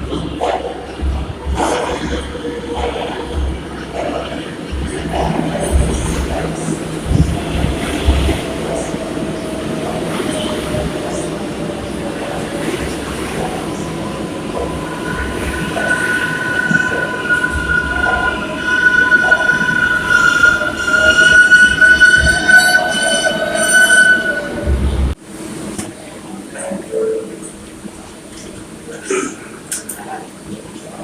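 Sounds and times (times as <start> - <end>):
subway train running on rails: 0.0 - 31.0
steel wheels squealing: 16.0 - 24.6.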